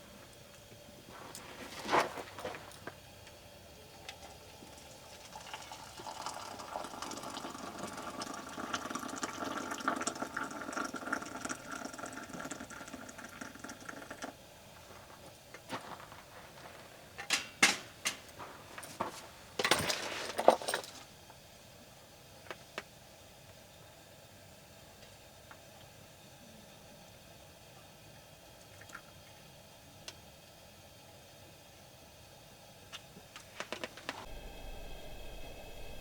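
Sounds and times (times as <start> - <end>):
water pouring into container: 4.6 - 14.3
sharp knocks and clatters: 17.2 - 20.7.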